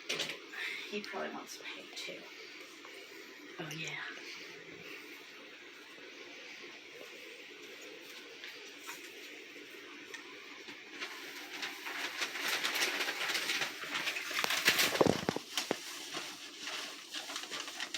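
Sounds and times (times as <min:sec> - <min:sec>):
hay rustling and crackling: 0:07.0 - 0:17.9.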